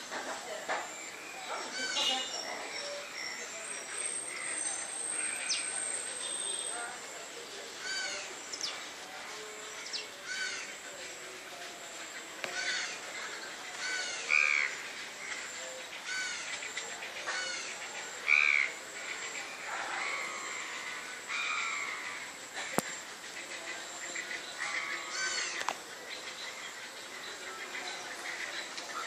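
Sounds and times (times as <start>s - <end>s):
birds cawing: 20.0s - 22.4s.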